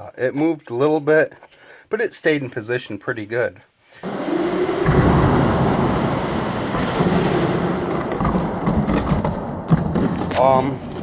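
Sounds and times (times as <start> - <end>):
toy car rumbling over rough ground: 4.6 - 11.0.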